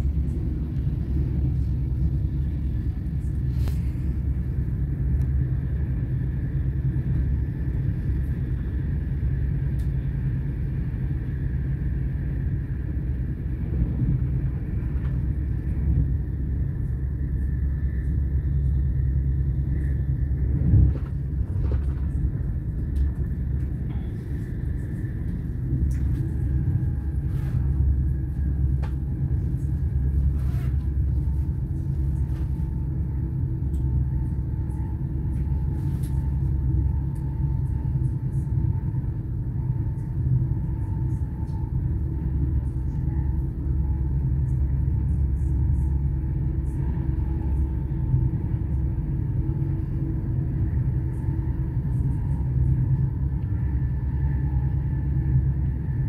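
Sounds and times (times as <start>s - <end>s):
train running rumble: 0.0s - 56.0s.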